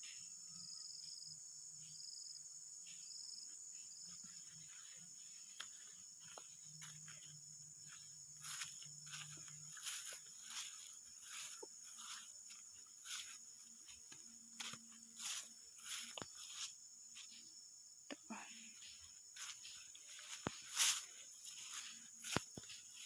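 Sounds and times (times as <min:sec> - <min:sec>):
insects chirring: 0:00.0 - 0:23.0
footsteps through dry undergrowth: 0:04.0 - 0:17.4, 0:18.7 - 0:23.0.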